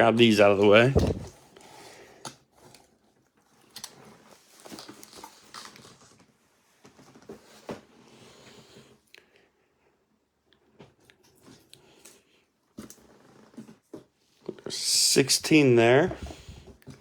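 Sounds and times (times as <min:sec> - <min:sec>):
objects handled on a table: 0:00.6 - 0:01.4.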